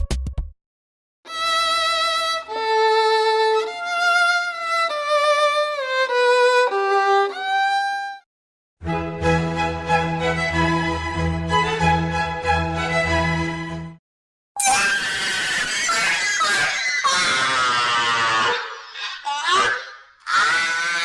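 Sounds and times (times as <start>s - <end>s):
solo violin slow melody: 1.3s - 8.2s.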